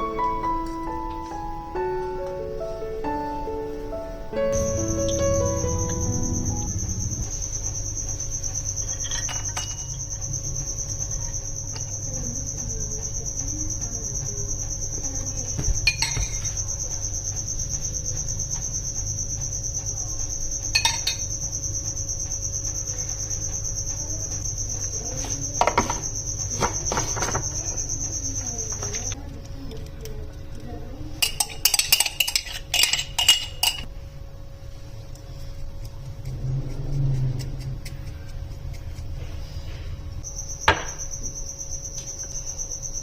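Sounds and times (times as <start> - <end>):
crickets chirring: 0.0 - 43.0
kitchen utensils and dishes clinking: 8.8 - 10.0, 15.8 - 16.6, 20.7 - 21.3, 31.2 - 33.9.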